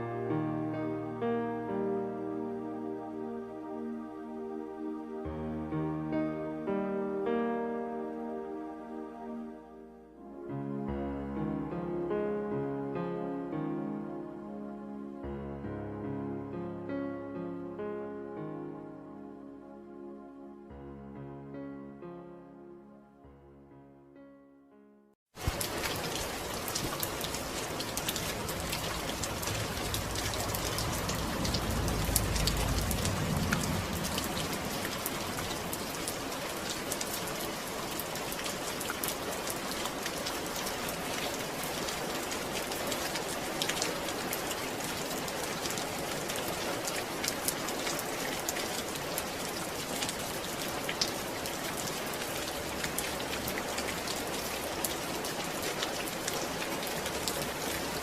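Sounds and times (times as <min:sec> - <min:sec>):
steady rain falling: 0:25.3 - 0:58.0
low rumble: 0:29.1 - 0:35.6.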